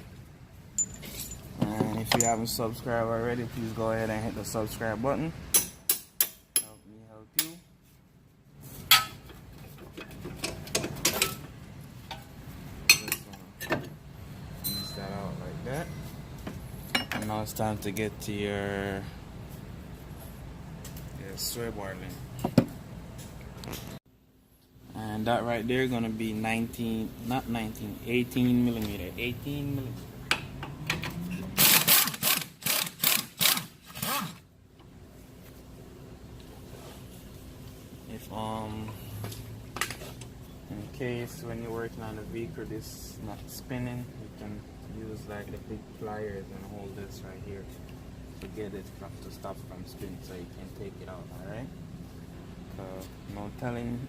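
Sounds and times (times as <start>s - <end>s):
hand ratchet clicking: 31.6s - 34.4s.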